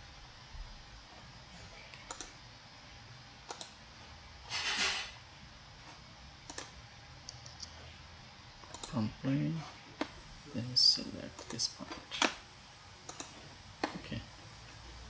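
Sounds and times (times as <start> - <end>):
computer mouse clicks: 1.9 - 2.4, 3.5 - 3.8, 6.5 - 7.8, 8.6 - 9.0, 11.4 - 12.4, 13.0 - 14.0.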